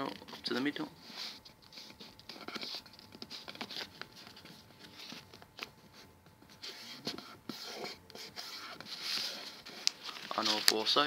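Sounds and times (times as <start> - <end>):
paper being folded: 8.8 - 11.0.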